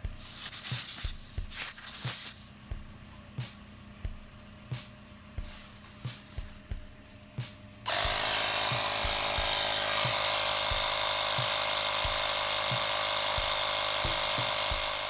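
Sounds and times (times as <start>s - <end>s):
tyre inflator motor buzzing: 7.8s - 15.0s.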